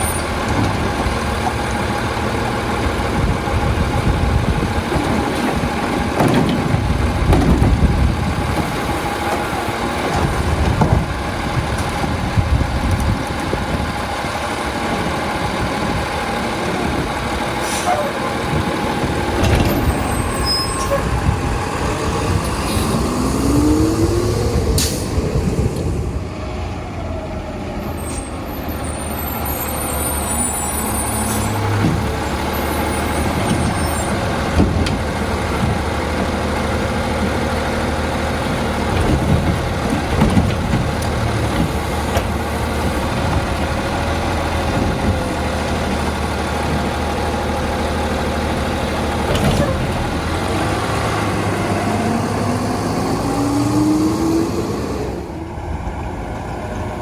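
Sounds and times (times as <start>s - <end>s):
diesel engine revving: 0.0s - 57.0s
air brake hisses: 17.6s - 18.2s, 24.8s - 25.2s.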